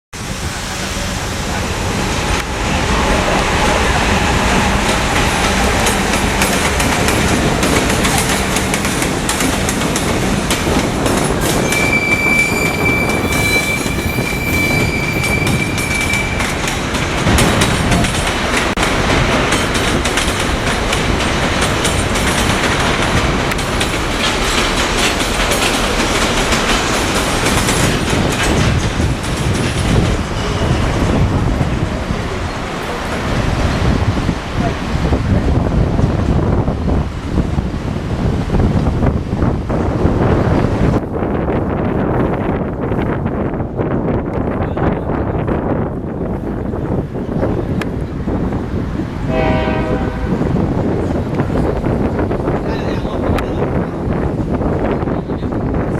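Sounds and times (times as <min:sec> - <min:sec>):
train wheels clattering: 0:02.3 - 0:31.3
high wheel squeal: 0:11.5 - 0:16.9.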